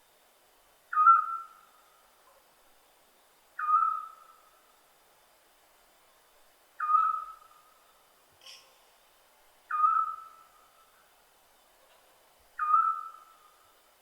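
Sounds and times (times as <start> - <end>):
owl hooting: 0.9 - 1.9, 3.6 - 4.5, 6.8 - 7.8, 9.7 - 10.6, 12.6 - 13.6.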